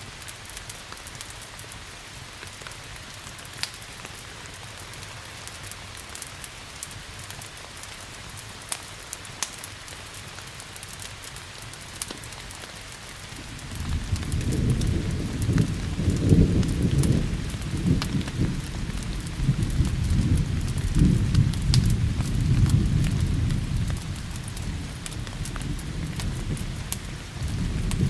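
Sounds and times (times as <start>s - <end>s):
steady rain: 0.0s - 28.0s
wood fire crackling: 0.0s - 28.0s
low thunder rumble: 13.3s - 28.0s.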